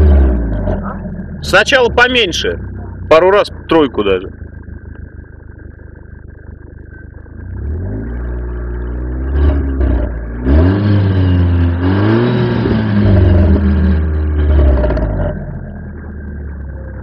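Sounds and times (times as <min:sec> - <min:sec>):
car exhaust revving: 0:00.0 - 0:17.0.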